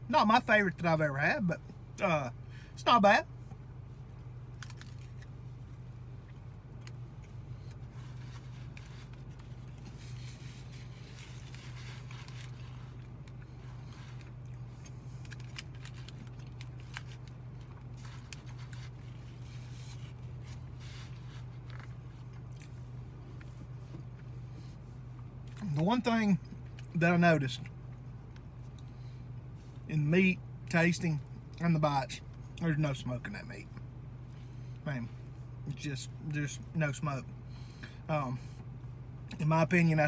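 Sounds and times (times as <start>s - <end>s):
low hum inside a car: 0.0s - 40.0s
foil wrapper crinkling: 4.6s - 5.3s, 15.1s - 21.9s
person chewing: 6.2s - 24.3s.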